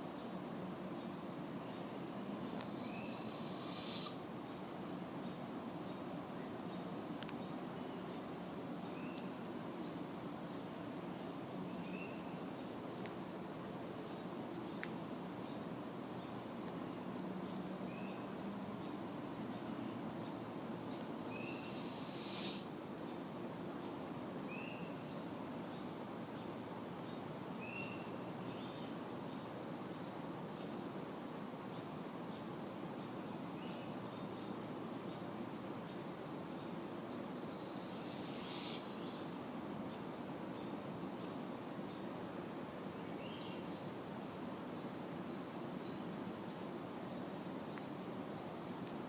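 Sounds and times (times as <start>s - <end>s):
low background hiss: 0.0s - 49.0s
owl screeching call: 2.4s - 4.3s, 20.9s - 22.8s, 37.1s - 39.0s.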